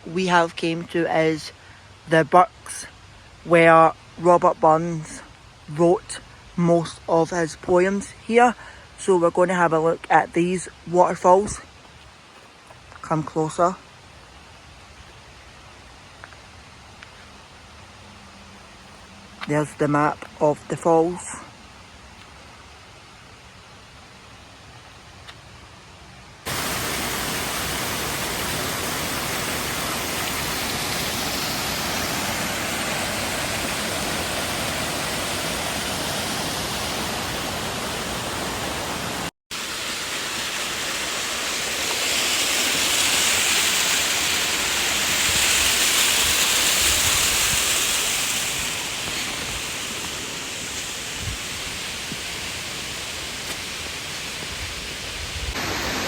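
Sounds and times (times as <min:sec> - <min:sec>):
waterfall rushing: 0:26.4 - 0:56.0.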